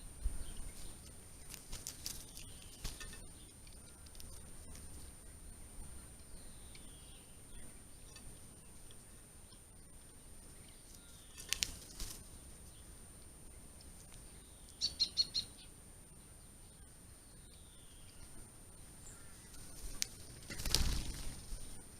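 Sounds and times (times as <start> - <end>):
small birds calling: 0.0 - 21.9
high bird chirps: 14.4 - 15.7.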